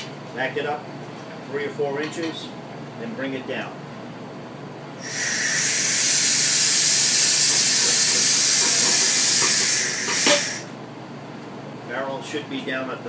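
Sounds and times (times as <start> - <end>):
loud hiss of air release: 5.0 - 10.7.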